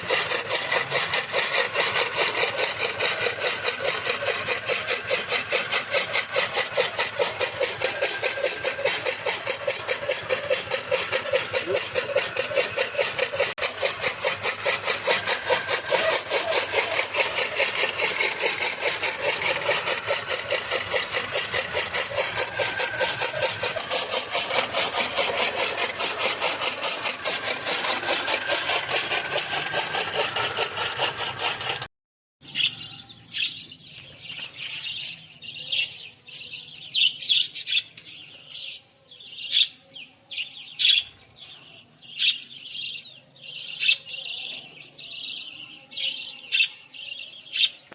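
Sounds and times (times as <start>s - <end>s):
chaff cutter blade strokes: 0.0s - 31.9s
machine running: 0.0s - 31.9s.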